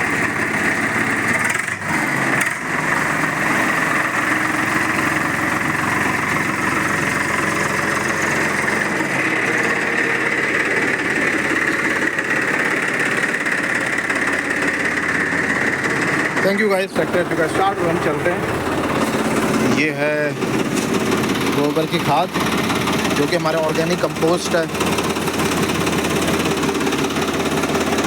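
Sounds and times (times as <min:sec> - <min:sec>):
tractor diesel engine idling: 0:00.0 - 0:28.0.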